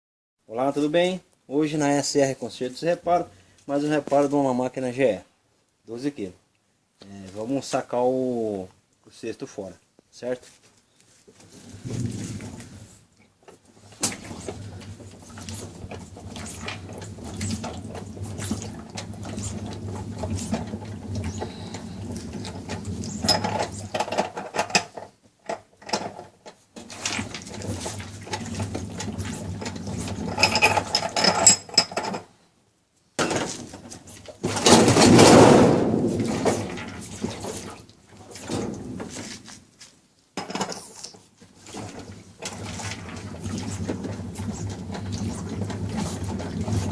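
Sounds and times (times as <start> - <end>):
rush of noise: 11.8 - 12.9.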